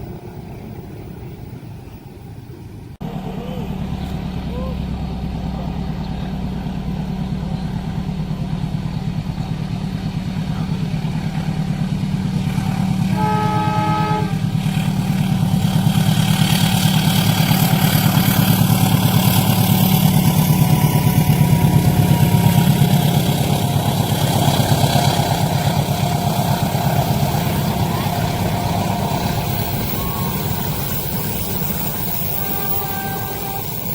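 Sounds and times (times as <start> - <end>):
train rumble: 0.0 - 33.9
train horn blast: 12.7 - 15.4, 19.3 - 33.9.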